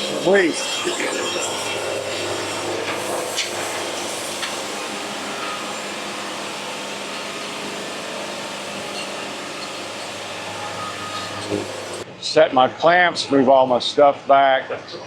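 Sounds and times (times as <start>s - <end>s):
sawmill machine hum: 0.0s - 12.0s.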